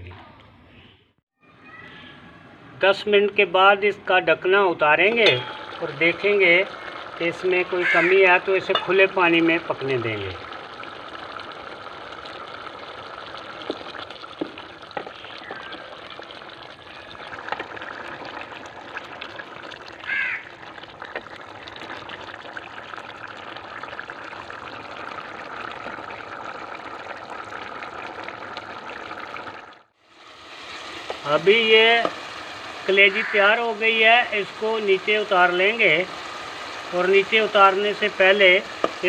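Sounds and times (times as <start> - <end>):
food bubbling and hissing in a pan: 5.0 - 39.0
bird call: 15.1 - 15.9.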